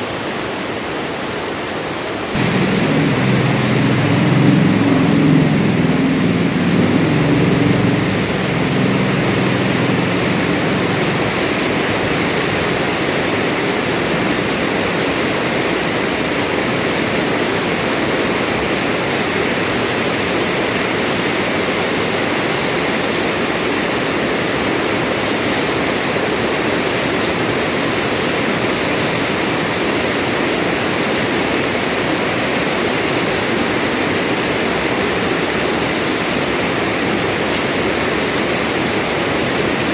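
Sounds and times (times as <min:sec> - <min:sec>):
steady rain falling: 0:01.0 - 0:39.9
low rumble: 0:02.4 - 0:12.9.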